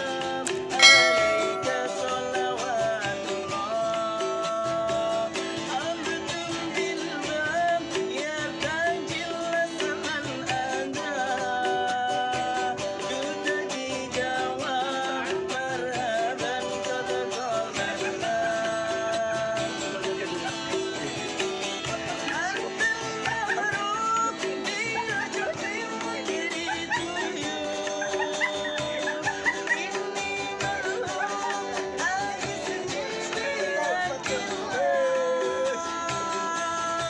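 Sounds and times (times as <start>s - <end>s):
person singing: 0.0s - 20.8s, 21.9s - 37.0s
strummed guitar: 0.0s - 37.0s.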